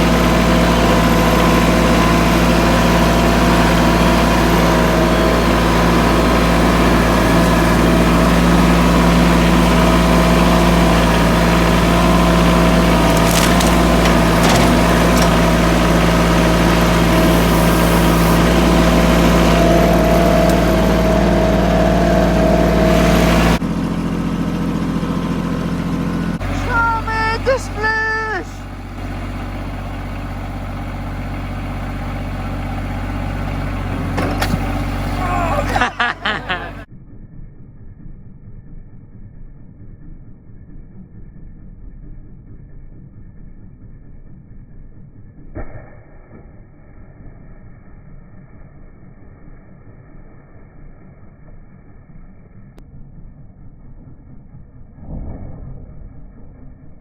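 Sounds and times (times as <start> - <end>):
vehicle engine running: 0.0 - 45.6.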